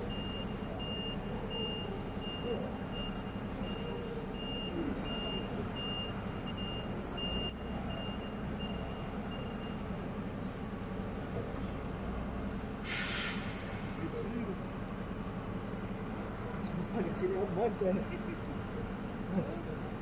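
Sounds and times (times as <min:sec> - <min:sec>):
truck reversing alarm beeping: 0:00.0 - 0:10.3.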